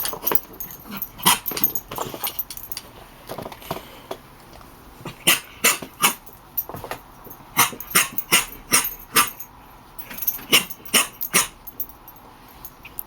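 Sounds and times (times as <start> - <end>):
dog barking: 5.1 - 6.2, 7.6 - 9.5, 10.4 - 11.6.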